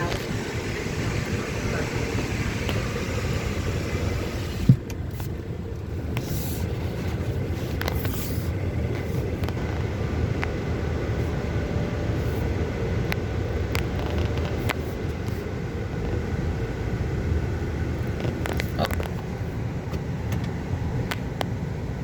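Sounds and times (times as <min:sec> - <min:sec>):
outside hiss: 0:00.0 - 0:05.4
car engine rumble: 0:00.0 - 0:22.0.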